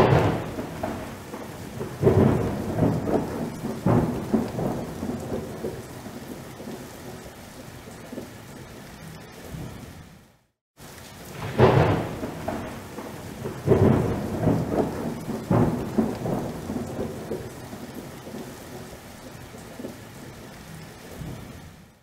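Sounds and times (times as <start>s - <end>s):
thunder rumbling: 0.0s - 7.3s, 11.1s - 20.0s
steady rain: 0.0s - 22.0s.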